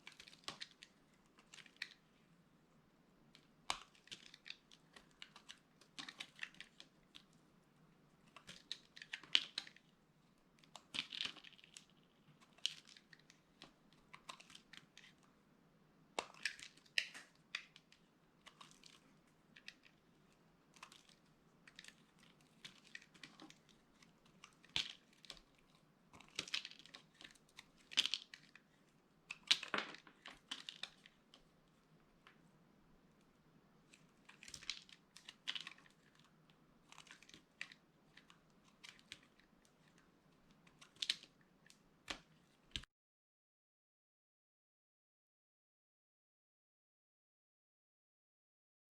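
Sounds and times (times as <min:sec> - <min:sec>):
dry soap crunching: 0:00.0 - 0:02.1, 0:03.3 - 0:07.4, 0:08.2 - 0:10.0, 0:10.6 - 0:15.3, 0:16.2 - 0:32.4, 0:33.8 - 0:42.3.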